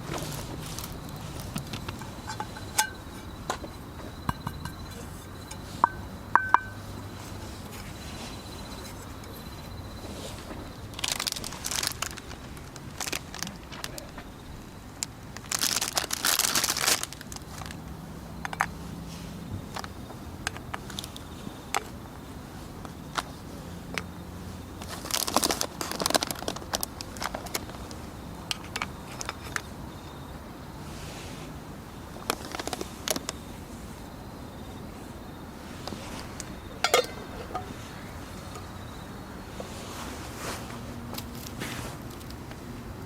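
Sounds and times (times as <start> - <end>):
campfire crackling: 0.0 - 9.8, 10.4 - 30.0, 35.0 - 42.7
crinkling: 0.0 - 30.0, 32.1 - 34.1, 35.0 - 42.6.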